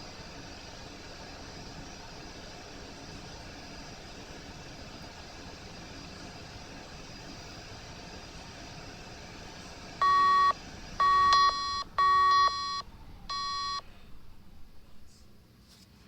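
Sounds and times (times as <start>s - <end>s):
clothes dryer running: 0.0s - 15.6s
electronic beeping melody: 10.0s - 13.8s.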